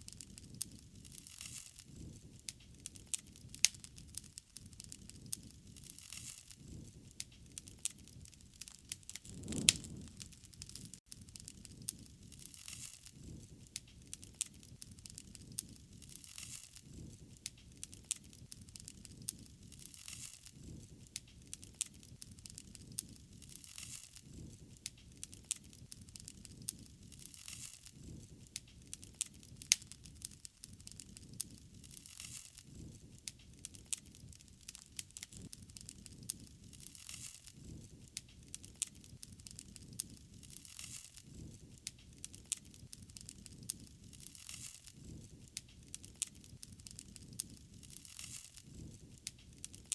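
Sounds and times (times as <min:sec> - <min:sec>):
wood fire crackling: 0:00.0 - 0:49.9
low rumble of flames: 0:01.8 - 0:49.9
soft hiss: 0:09.0 - 0:10.7.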